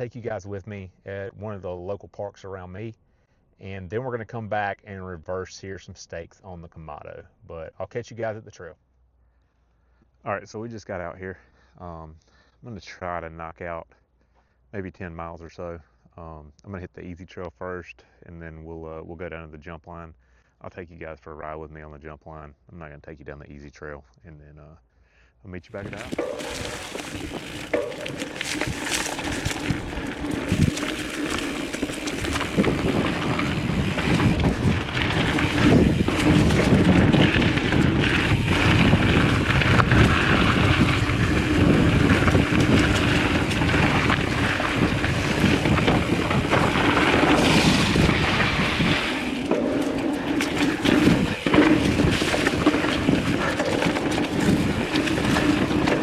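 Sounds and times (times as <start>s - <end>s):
tyre rumble: 25.7s - 56.0s
bike knocks and rattles: 25.8s - 56.0s
wind buffeting microphone: 25.8s - 56.0s.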